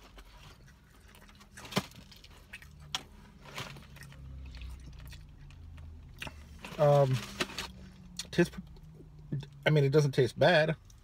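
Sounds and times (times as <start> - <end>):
person chewing fried chicken: 0.0 - 6.6.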